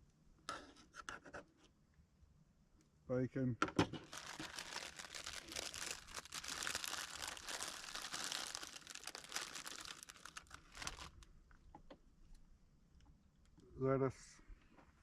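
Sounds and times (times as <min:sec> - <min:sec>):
plastic packaging crinkling: 0:04.0 - 0:11.2.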